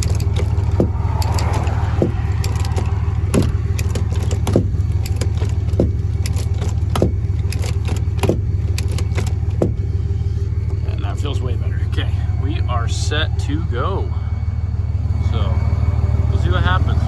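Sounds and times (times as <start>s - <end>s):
chain clinking and clicking: 0.0s - 11.6s
diesel truck idling: 0.0s - 17.0s.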